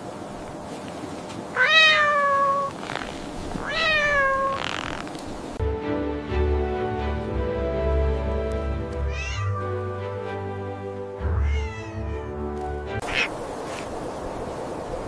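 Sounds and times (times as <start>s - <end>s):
cat meowing: 1.6s - 2.8s, 3.6s - 5.1s, 9.0s - 9.7s, 11.3s - 12.4s, 13.0s - 13.4s
music: 5.6s - 13.0s.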